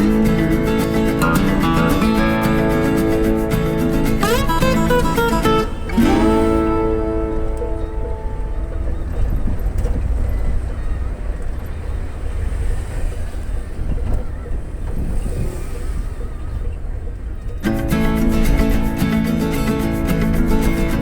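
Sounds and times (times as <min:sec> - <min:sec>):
vehicle road rumble: 0:00.0 - 0:21.0
wind buffeting microphone: 0:00.0 - 0:21.0.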